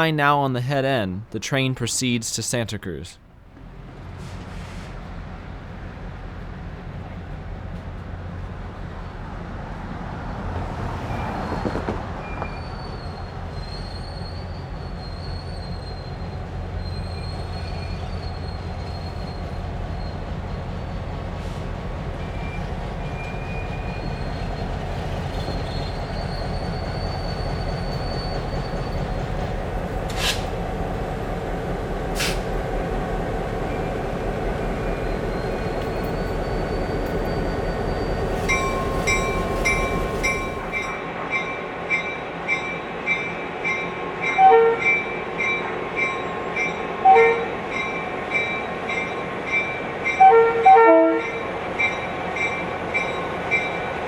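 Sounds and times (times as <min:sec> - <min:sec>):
diesel train rumbling past: 0:03.4 - 0:54.0
wheel flanges squealing: 0:11.1 - 0:30.6, 0:34.8 - 0:41.0.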